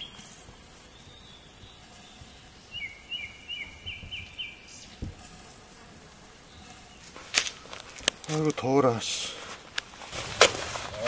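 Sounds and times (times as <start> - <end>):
bird chirping: 0.0 - 5.2, 6.4 - 7.8.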